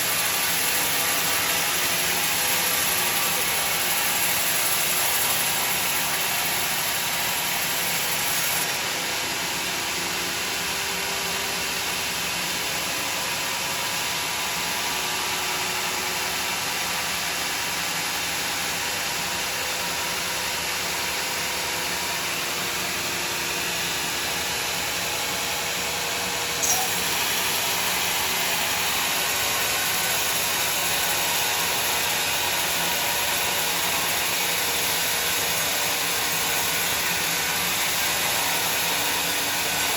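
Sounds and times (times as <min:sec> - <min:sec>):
sawmill saw and machinery running: 0:00.0 - 0:39.9
sharp click: 0:26.6 - 0:27.1.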